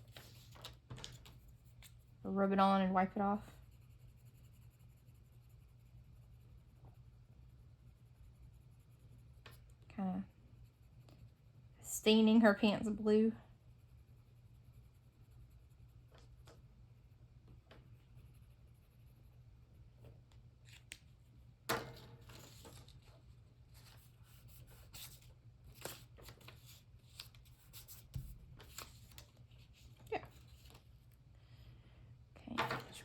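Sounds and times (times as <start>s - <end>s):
paper scratching and rustling: 0.0s - 2.0s, 22.2s - 30.8s.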